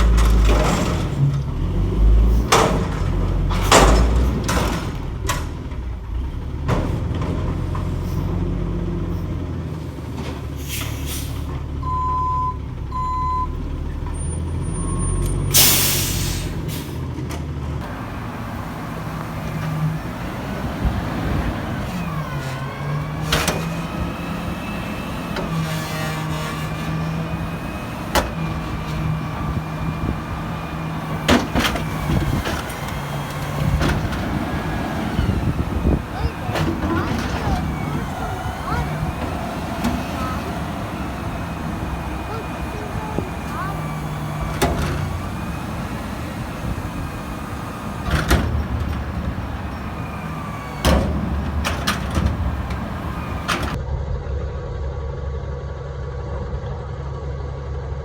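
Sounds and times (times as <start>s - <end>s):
truck engine idling and revving: 0.0s - 58.0s
air brake hiss: 10.6s - 11.5s, 15.2s - 17.0s
short beeps: 11.8s - 13.6s.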